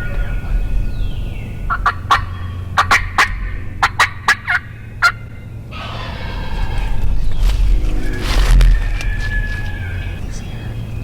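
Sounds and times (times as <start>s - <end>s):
turkey gobbling: 0.0s - 10.4s
steady low rumble: 0.0s - 11.0s.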